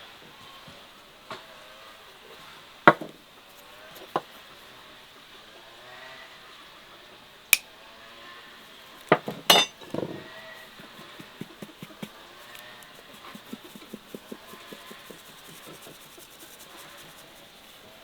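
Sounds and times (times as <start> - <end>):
dishes and utensils clinking: 9.3 - 10.2.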